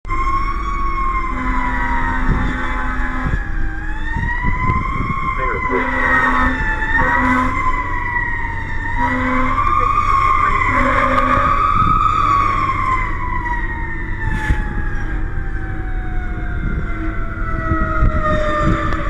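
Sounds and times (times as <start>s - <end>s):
emergency siren wailing: 0.1s - 19.0s
vehicle engine rumble: 0.1s - 19.0s
short low horn blasts: 1.2s - 3.6s, 5.3s - 8.0s, 8.8s - 12.0s.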